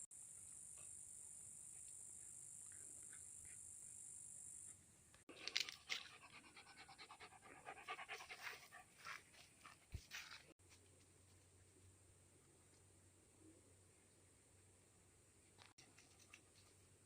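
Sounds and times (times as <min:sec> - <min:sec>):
dog panting: 0:05.9 - 0:10.1.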